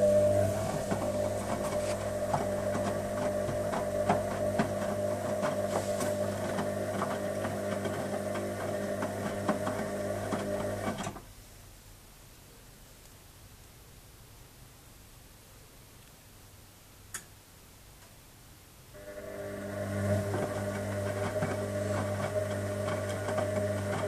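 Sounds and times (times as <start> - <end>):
washing machine motor hum: 0.0 - 11.1, 19.0 - 24.0.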